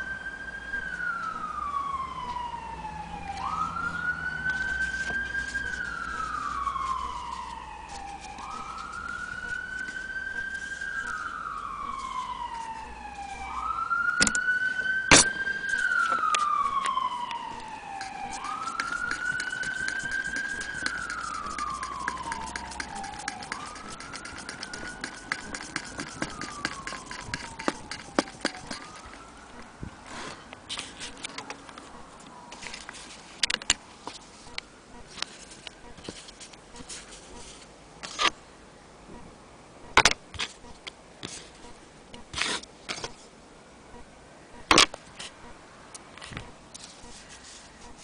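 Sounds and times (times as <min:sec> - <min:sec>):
high wailing tone: 0:03.1 - 0:29.8
rubbing sound: 0:04.4 - 0:13.6, 0:17.5 - 0:29.3, 0:30.1 - 0:31.5, 0:32.6 - 0:38.3, 0:40.3 - 0:43.3, 0:46.4 - 0:48.0.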